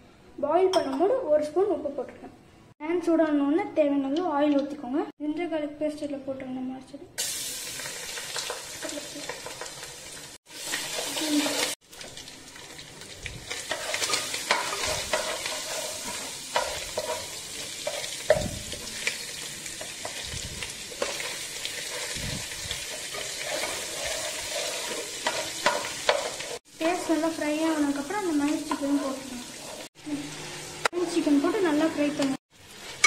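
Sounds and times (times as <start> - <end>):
paste sizzling in hot oil: 7.2 - 33.0
spoon scraping and knocking pan: 13.5 - 19.2, 19.8 - 27.2, 28.6 - 29.9.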